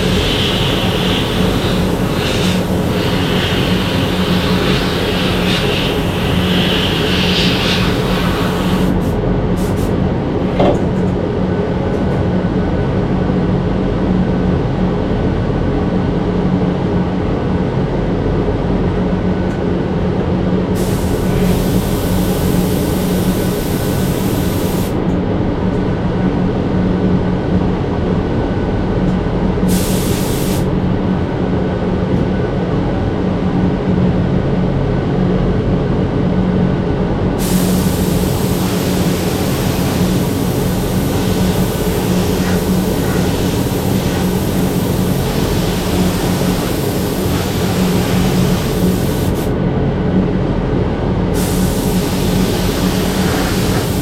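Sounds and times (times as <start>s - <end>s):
compressed air hiss: 0.0s - 10.0s, 20.8s - 25.0s, 29.6s - 30.8s, 37.4s - 49.6s, 51.4s - 54.0s
machine drone with low hum: 0.0s - 54.0s.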